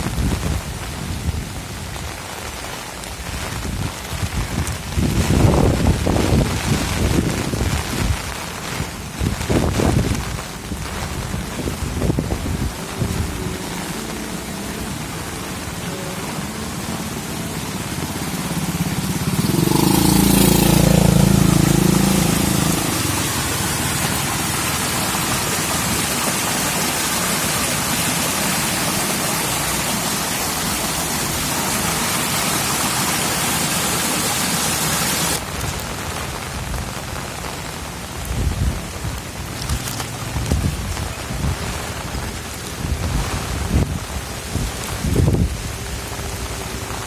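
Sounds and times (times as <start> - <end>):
heavy rain falling: 0.0 - 47.0
vehicle engine passing: 10.7 - 35.4.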